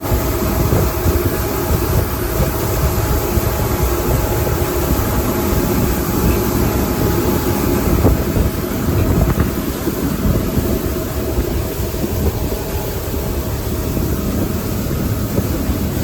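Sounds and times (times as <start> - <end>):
boat motor running: 0.0 - 16.0
wind rumbling on microphone: 0.0 - 16.0.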